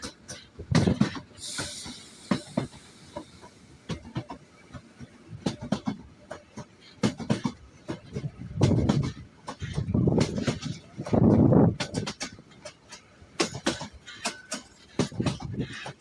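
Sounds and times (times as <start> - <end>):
train rattling along track: 0.0 - 16.0
brief hiss: 1.4 - 3.3.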